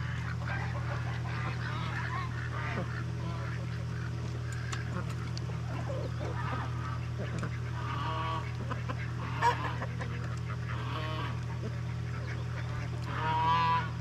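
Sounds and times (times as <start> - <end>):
poultry calling: 0.0 - 14.0
steady low hum: 0.0 - 14.0.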